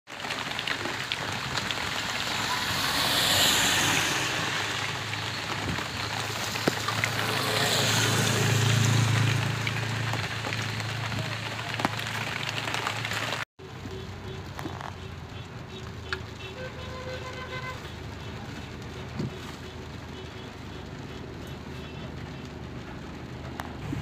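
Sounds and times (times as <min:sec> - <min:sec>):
heavy rain on a street: 0:00.1 - 0:24.0
low engine hum: 0:22.7 - 0:24.0.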